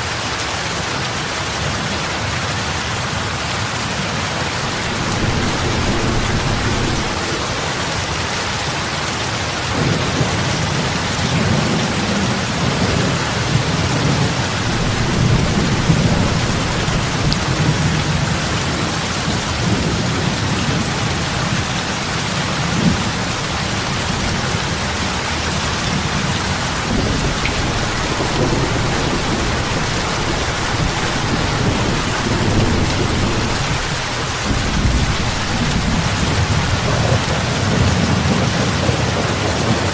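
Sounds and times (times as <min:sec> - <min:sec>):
heavy rain on lake water: 0:00.0 - 0:39.9
low rumble: 0:04.3 - 0:08.8.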